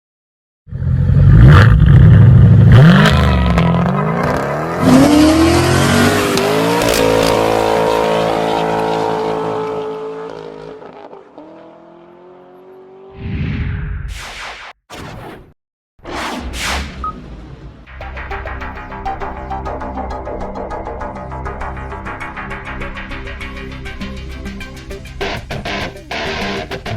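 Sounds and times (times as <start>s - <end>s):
car engine revving: 1.0s - 13.1s, 25.2s - 26.9s
short whoosh: 13.2s - 17.9s.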